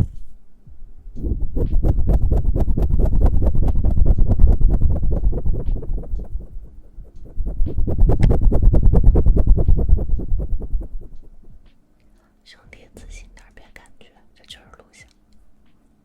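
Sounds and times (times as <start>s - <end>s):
hands rubbing near microphone: 1.2s - 11.5s.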